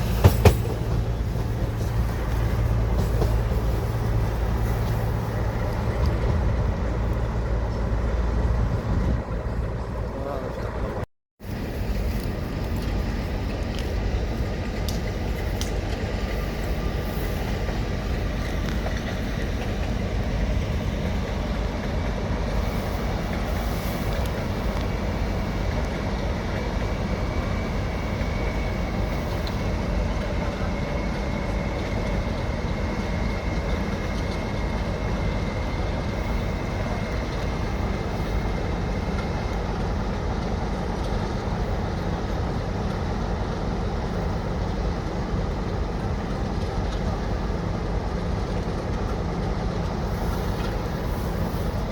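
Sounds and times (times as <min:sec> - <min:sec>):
train rumbling on rails: 0:00.0 - 0:51.9.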